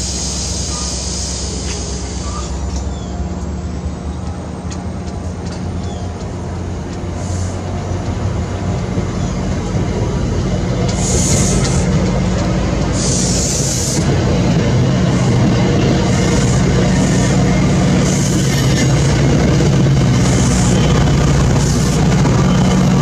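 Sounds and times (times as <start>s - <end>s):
rumbling wheel and rail noise: 0.0s - 23.0s
train passing with low drone: 0.0s - 23.0s.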